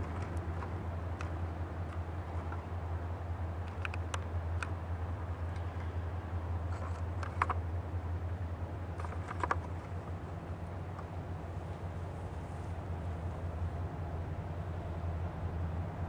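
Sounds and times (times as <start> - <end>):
diesel freight train rumbling: 9.7 - 16.0.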